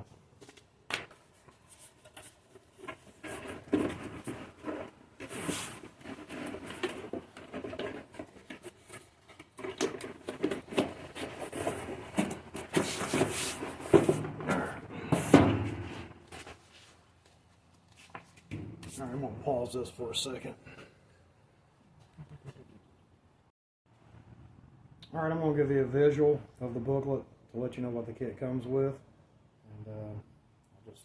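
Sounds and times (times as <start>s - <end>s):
hands rummaging through parts: 1.8s - 16.6s.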